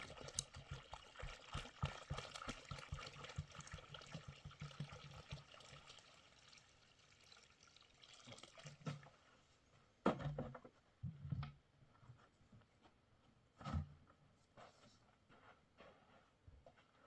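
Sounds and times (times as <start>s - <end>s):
water pouring: 0.0s - 9.2s
objects knocking and thumping: 10.0s - 11.5s.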